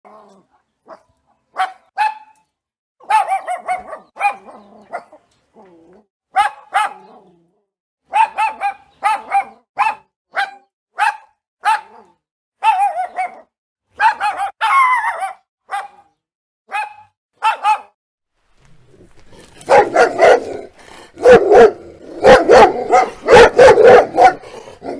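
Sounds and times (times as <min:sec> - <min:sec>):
dog barking: 0:00.8 - 0:02.4, 0:03.0 - 0:05.2, 0:06.3 - 0:07.2, 0:08.1 - 0:18.0, 0:19.6 - 0:24.9.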